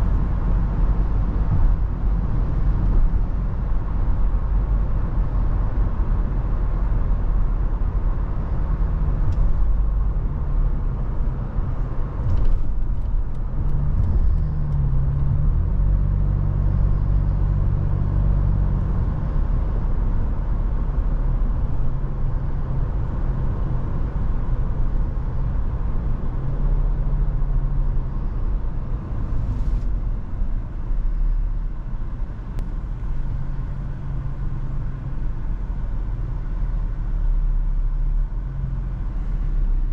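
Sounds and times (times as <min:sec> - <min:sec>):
heavy wind: 0:00.0 - 0:15.0
car engine hum: 0:00.0 - 0:39.9
road noise: 0:00.0 - 0:39.9.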